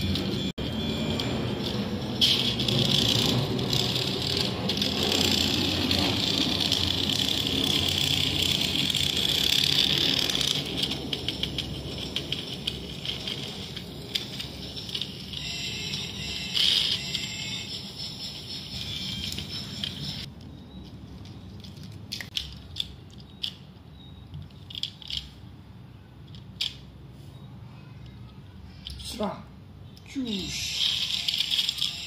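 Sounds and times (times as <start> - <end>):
toy electronic sound effect: 0.0 - 20.3, 30.2 - 32.0.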